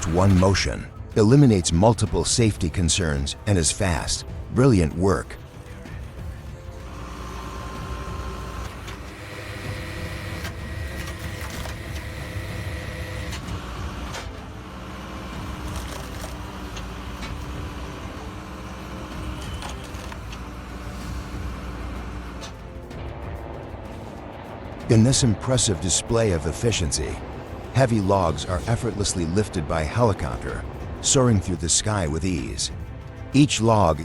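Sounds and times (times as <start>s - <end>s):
engine running: 5.4s - 31.6s.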